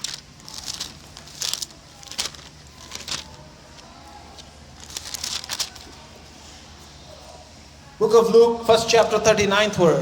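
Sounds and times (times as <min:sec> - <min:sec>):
pages being turned: 0:00.0 - 0:06.0
low room hum: 0:00.0 - 0:10.0.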